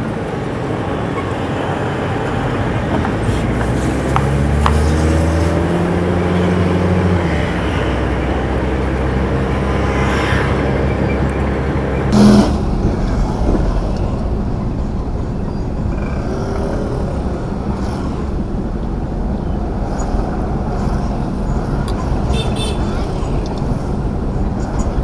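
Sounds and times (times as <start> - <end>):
road and traffic noise: 0.0 - 25.0
truck engine running: 0.1 - 25.0
loud blast: 12.1 - 16.5.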